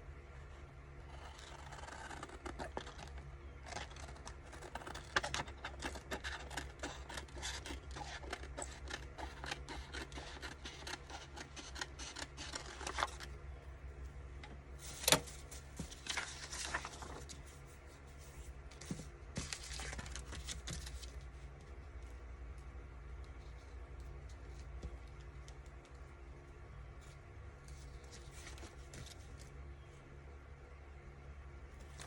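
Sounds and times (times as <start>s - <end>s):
paper rustling: 1.1s - 13.3s, 14.8s - 22.2s, 27.0s - 29.5s
scissors snipping paper: 1.1s - 13.3s.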